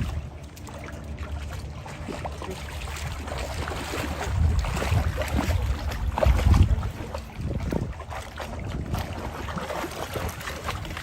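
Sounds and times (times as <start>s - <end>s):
wind buffeting microphone: 0.0s - 0.9s, 1.7s - 11.0s
moving water: 0.0s - 11.0s.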